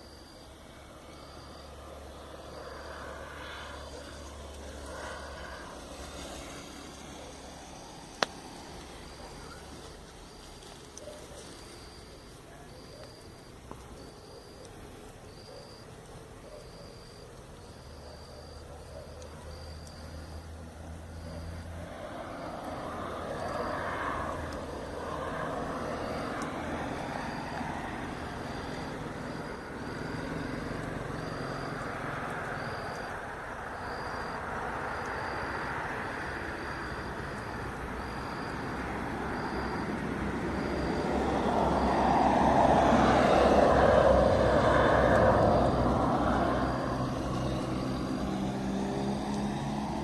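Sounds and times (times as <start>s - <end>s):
roadside traffic noise: 0.0s - 14.7s, 16.4s - 50.0s
vehicle passing: 0.5s - 12.8s, 17.6s - 50.0s.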